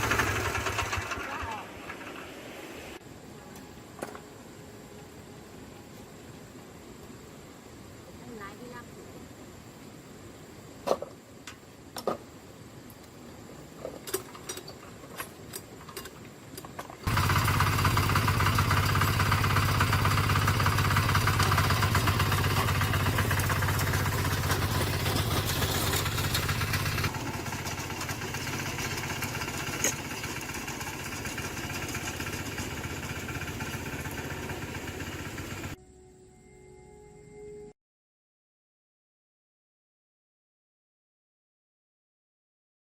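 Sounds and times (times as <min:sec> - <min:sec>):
tractor engine running: 0:00.0 - 0:02.7, 0:17.0 - 0:35.8.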